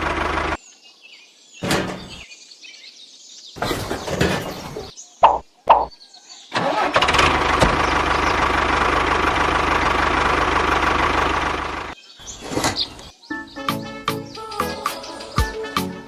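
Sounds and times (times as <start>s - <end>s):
small engine running: 0.0s - 0.6s, 6.6s - 12.0s.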